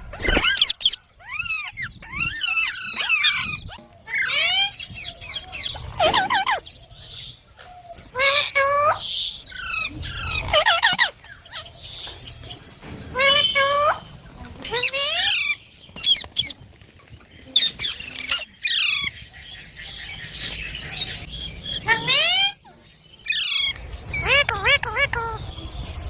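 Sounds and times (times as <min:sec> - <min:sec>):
parrot chattering calls: 0:00.1 - 0:05.0, 0:05.7 - 0:06.7, 0:08.1 - 0:11.8, 0:21.2 - 0:25.4.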